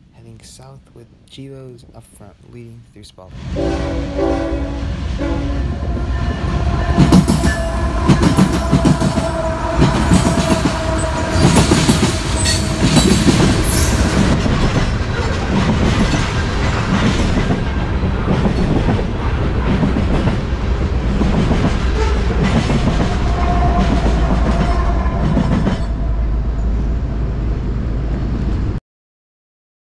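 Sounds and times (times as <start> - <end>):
train rumble: 3.2 - 28.8
held tone: 5.2 - 14.3
freight train wheels clicking: 5.6 - 26.0.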